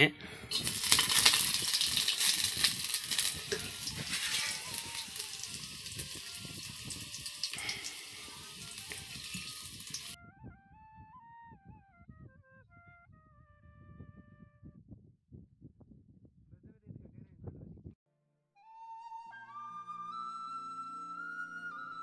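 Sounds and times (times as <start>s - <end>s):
garlic and seeds sizzling in oil: 0.5s - 10.2s.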